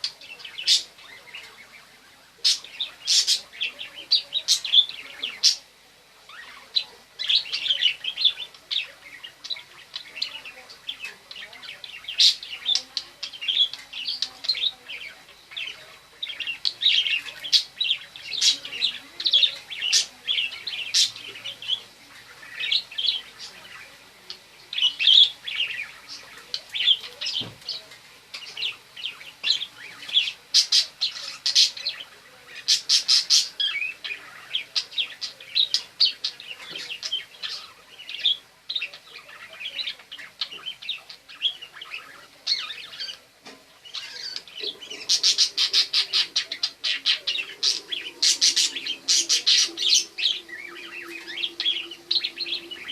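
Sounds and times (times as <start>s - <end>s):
budgerigar chattering and warbling: 28.4s - 52.9s.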